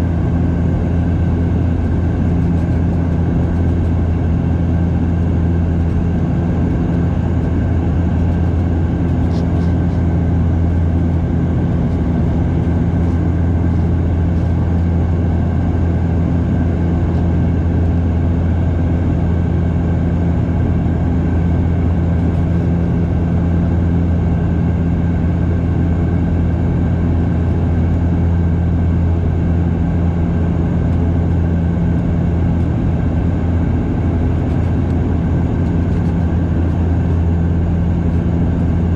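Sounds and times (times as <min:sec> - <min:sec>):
engine and airflow rush: 0:00.0 - 0:38.9
low propeller hum: 0:00.0 - 0:38.9.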